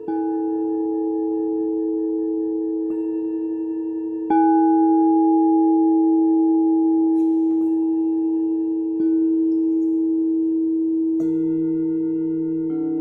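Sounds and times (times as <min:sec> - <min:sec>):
deeper singing bowl tone: 0:00.0 - 0:13.0
singing bowls ringing: 0:00.0 - 0:13.0.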